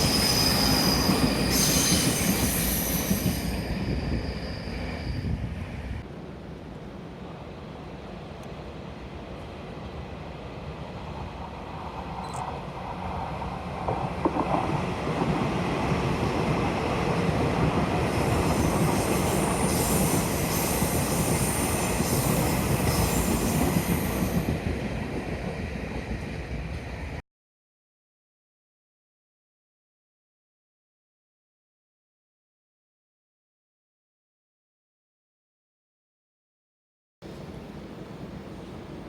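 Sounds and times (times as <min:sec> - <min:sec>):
high wheel squeal: 0:00.0 - 0:05.6
train wheels rumbling on rails: 0:00.0 - 0:27.2.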